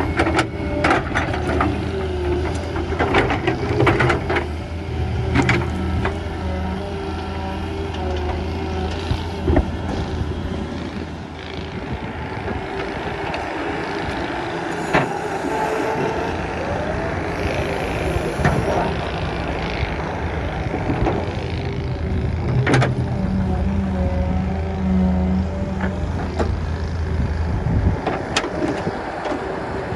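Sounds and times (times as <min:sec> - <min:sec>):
soil scraping: 0:00.0 - 0:19.2
excavator diesel engine running: 0:00.0 - 0:29.9.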